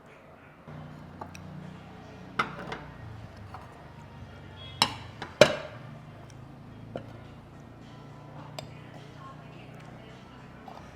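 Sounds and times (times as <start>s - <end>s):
low background hum: 0.1s - 10.9s
dishes and cutlery clinking: 2.4s - 5.9s, 8.3s - 10.9s.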